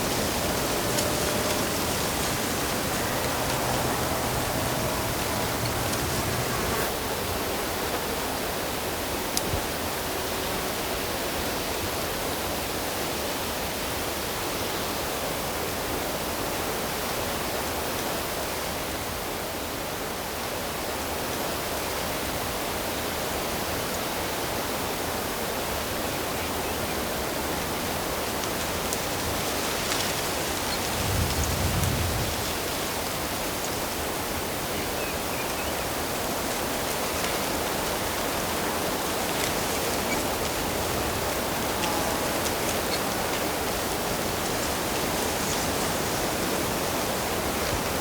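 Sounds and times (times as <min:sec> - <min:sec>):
flowing water rushing: 0:00.0 - 0:07.0, 0:28.0 - 0:48.0.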